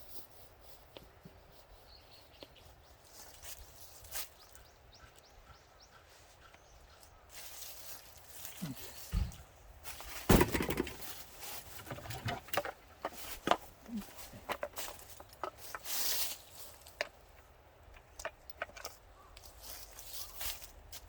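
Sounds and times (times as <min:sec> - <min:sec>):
hand handling knocks and rustles: 0:09.0 - 0:15.9.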